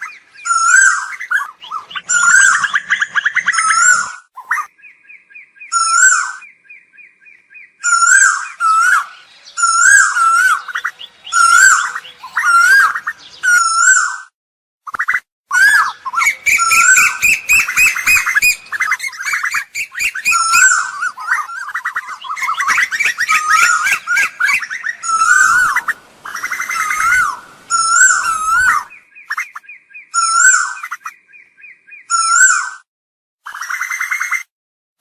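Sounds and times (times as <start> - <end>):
koels calling: 0.0 - 4.8, 7.8 - 14.2, 15.5 - 31.2.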